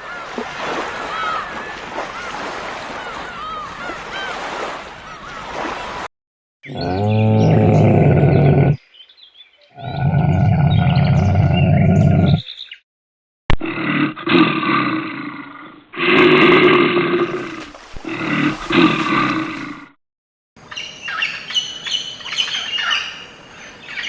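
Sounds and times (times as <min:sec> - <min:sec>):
animal roaring: 0:06.7 - 0:08.8, 0:09.8 - 0:12.4, 0:13.5 - 0:19.9.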